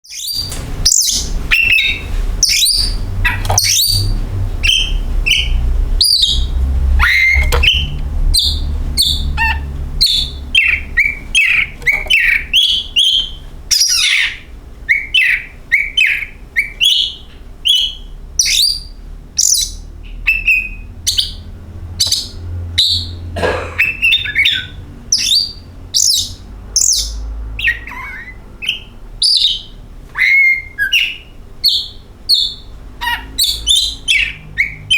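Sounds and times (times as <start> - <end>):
bird singing whistles and chirps: 0.0 - 21.4, 23.9 - 34.9
low hum: 1.2 - 12.6.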